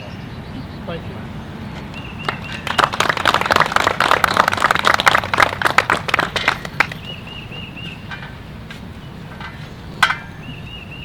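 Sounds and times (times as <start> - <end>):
crowd applauding: 2.2 - 7.2.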